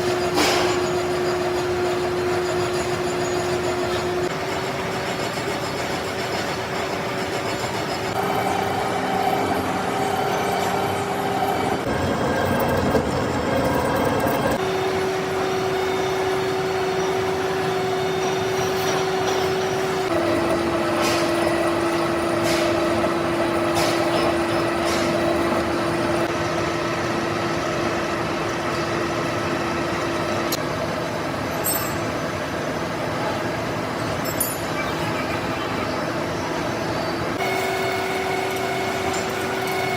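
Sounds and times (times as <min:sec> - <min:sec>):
machine tool droning: 0:00.0 - 0:30.6.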